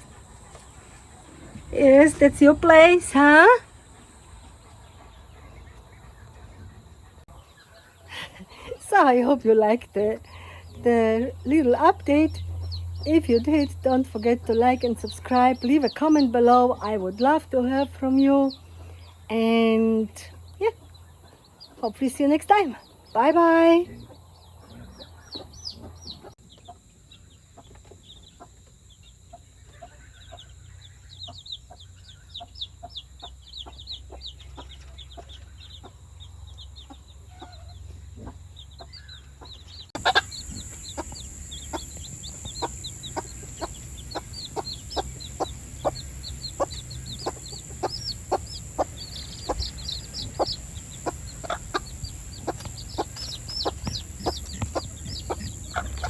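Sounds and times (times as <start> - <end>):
chickens clucking: 0.0 - 11.2, 20.6 - 56.0
high chirps: 38.6 - 56.0.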